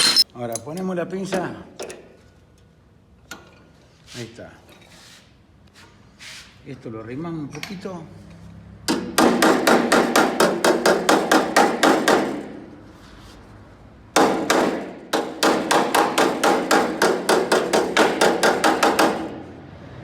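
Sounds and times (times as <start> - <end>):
hammer tapping on sheet steel: 8.9 - 12.7, 14.2 - 19.4.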